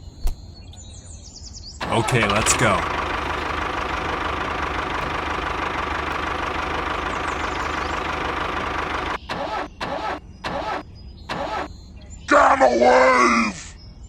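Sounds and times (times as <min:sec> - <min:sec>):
small motor whining: 0:02.1 - 0:11.7.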